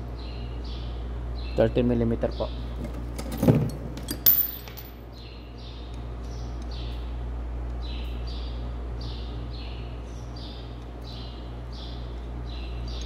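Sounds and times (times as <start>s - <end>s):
steady low hum: 0.0s - 13.0s
small bird chirping: 5.1s - 13.0s.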